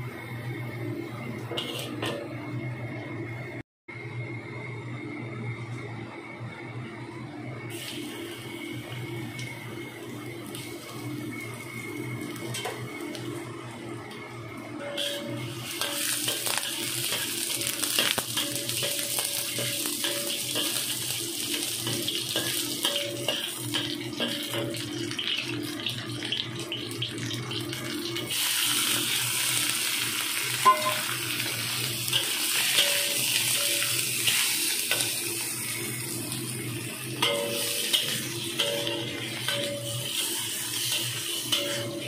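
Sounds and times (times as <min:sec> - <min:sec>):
stir-frying sizzle in wok: 0:00.0 - 0:03.6, 0:07.7 - 0:42.0
metal spatula scraping pan: 0:01.5 - 0:02.3, 0:14.8 - 0:20.9, 0:37.2 - 0:42.0.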